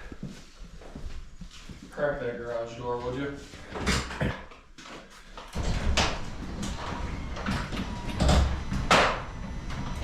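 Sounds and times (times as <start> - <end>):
garage door rattles: 5.5 - 10.0
garage door rumbling: 5.6 - 10.0.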